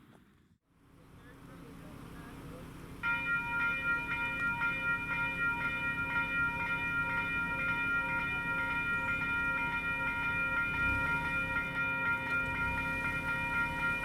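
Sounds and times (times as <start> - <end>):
electronic crossing bells ringing: 3.0 - 14.0.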